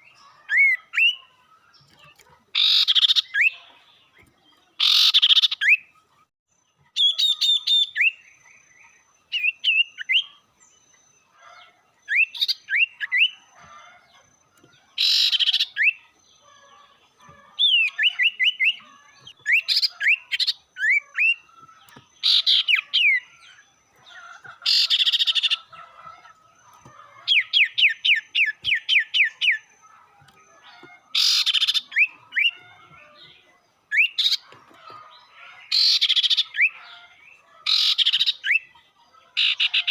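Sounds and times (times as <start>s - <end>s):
harsh rasping bird call: 4.8s - 5.8s, 15.0s - 16.0s, 30.7s - 32.9s.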